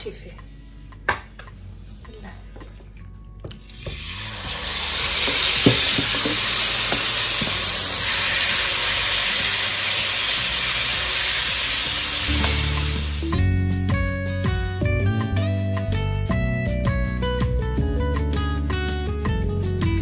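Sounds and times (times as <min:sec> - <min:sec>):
guitar music: 0:03.6 - 0:20.0
chicken sizzling in grill pan: 0:03.8 - 0:13.4
wooden spatula knocks: 0:05.2 - 0:07.6.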